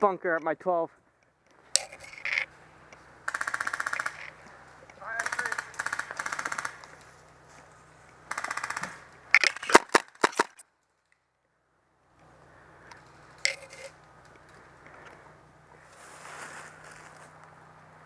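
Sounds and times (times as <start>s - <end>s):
airsoft guns firing bursts: 3.2s - 7.0s, 8.2s - 10.6s
sharp gun cracks: 3.3s - 4.5s, 5.1s - 7.0s, 8.3s - 10.6s.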